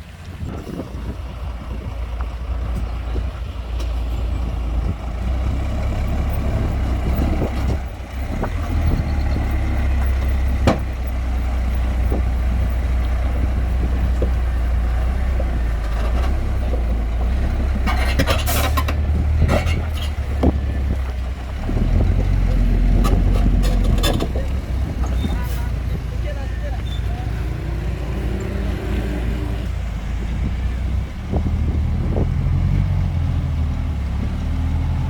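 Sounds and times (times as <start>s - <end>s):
diesel machinery rumbling: 0.0s - 35.0s
metal clanks and knocks: 15.3s - 25.5s.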